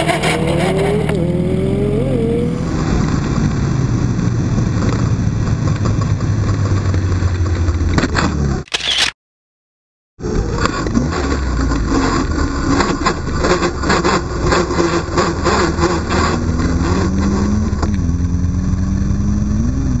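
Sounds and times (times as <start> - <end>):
motorcycle engine running: 0.0 - 8.6, 10.2 - 20.0.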